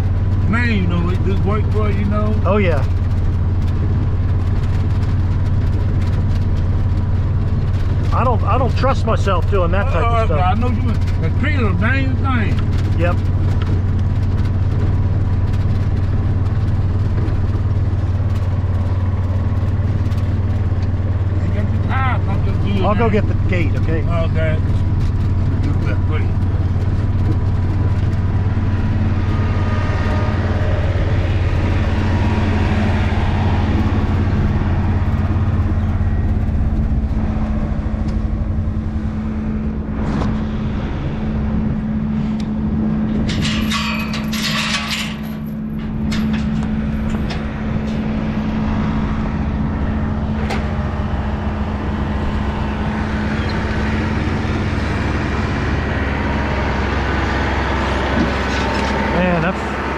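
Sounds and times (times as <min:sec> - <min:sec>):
vehicle engine humming: 0:00.0 - 0:59.9
metallic clatter: 0:43.0 - 0:48.6, 0:58.1 - 0:59.7.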